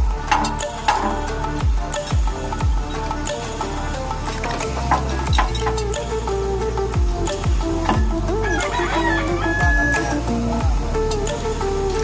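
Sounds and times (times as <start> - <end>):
deep kick drums: 0.0 - 0.7, 1.6 - 3.0, 7.0 - 8.4, 10.6 - 10.9
held synth notes: 0.0 - 12.0.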